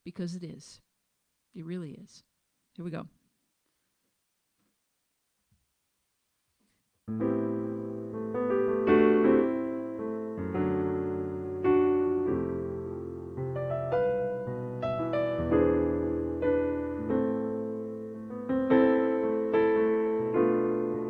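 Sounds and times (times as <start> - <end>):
piano playing slow chords: 7.1 - 21.0.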